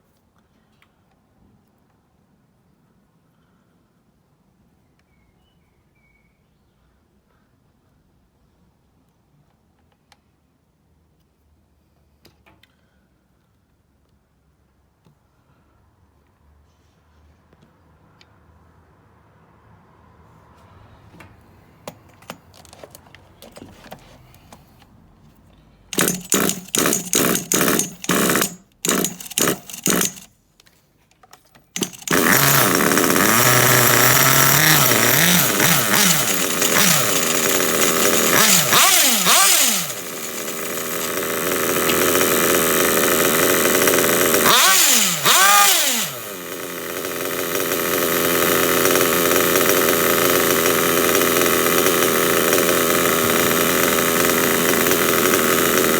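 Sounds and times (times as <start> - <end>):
starter box spinning engine: 25.9 - 30.3, 31.8 - 55.9
small nitro engine running: 26.0 - 30.3, 31.8 - 55.9.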